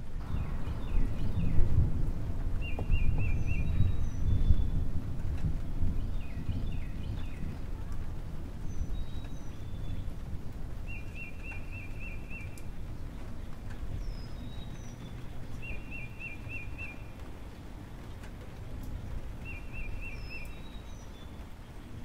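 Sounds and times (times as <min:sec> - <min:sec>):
small birds chirping: 0:02.6 - 0:04.8, 0:08.6 - 0:18.0, 0:19.4 - 0:22.0.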